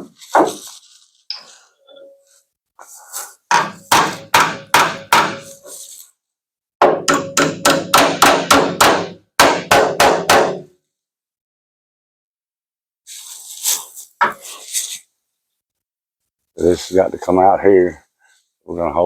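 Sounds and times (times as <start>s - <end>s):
hammer striking sheet metal: 3.5s - 5.6s, 6.8s - 10.7s.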